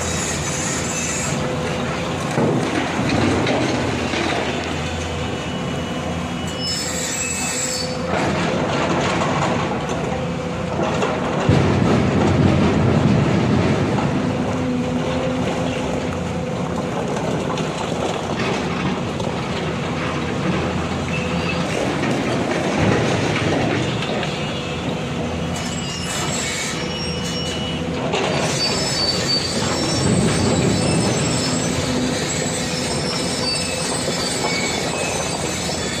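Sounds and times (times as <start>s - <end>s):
high metallic squeals: 0.0s - 1.6s, 5.2s - 8.1s, 25.5s - 36.0s
diesel machinery running: 0.0s - 36.0s.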